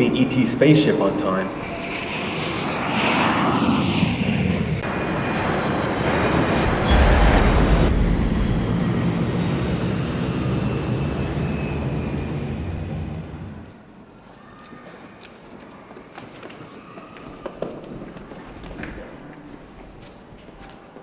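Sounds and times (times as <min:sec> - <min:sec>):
airplane roar: 0:00.0 - 0:13.9.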